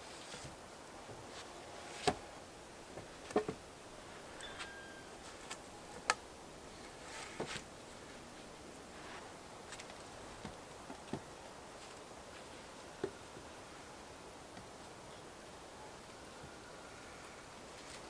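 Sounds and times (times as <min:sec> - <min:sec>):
faint steady hiss: 0:00.0 - 0:18.0
faint squeak: 0:04.3 - 0:06.0.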